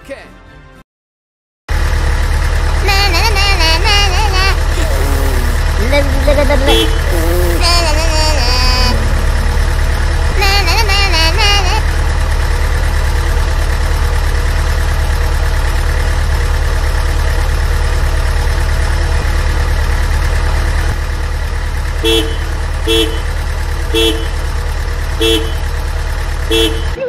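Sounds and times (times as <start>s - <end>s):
truck engine running: 1.7s - 27.0s
horn honking: 2.6s - 13.2s, 21.9s - 27.0s.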